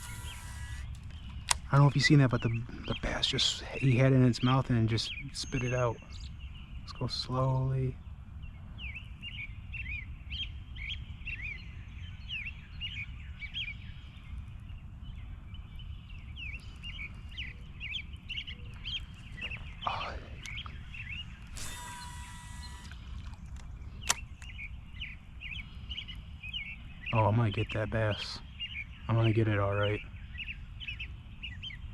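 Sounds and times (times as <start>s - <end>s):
small birds chirping: 0.0s - 31.9s
sharp click: 23.6s - 24.6s.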